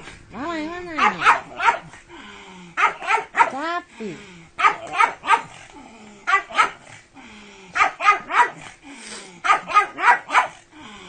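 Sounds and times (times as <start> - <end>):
dog barking: 1.0 - 1.9, 2.8 - 3.6, 4.6 - 5.6, 6.3 - 6.9, 7.8 - 8.7, 9.4 - 10.6.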